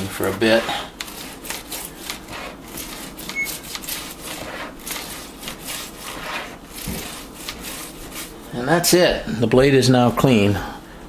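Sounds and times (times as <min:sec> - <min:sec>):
toothbrush scrubbing saw blade: 0:00.0 - 0:08.5.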